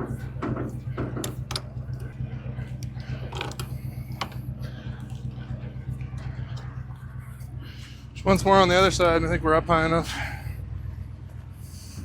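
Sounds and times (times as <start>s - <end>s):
jack cranking grinding and clicking: 0.0s - 2.2s, 3.2s - 4.5s
pickup engine idling: 0.0s - 12.0s.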